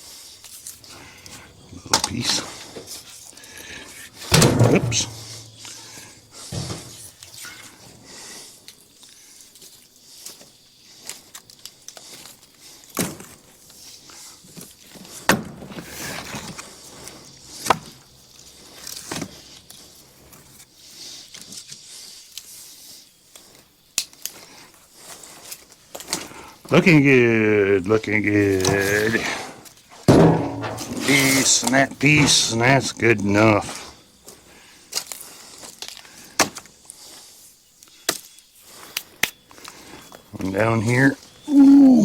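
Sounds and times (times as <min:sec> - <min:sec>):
firewood pieces knocking together: 0:04.3 - 0:07.1, 0:30.1 - 0:31.8.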